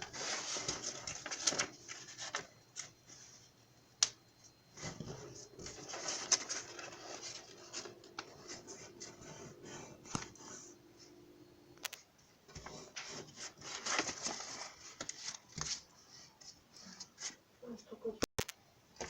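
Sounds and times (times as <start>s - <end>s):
paper rubbing and scraping: 0.0s - 2.5s, 4.8s - 10.8s, 12.6s - 17.4s.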